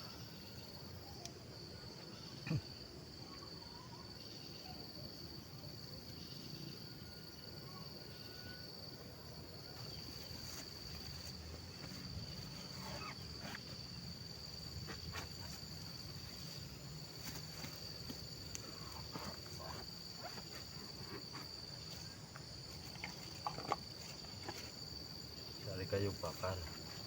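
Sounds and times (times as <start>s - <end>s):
insects high-pitched drone: 0.0s - 27.0s.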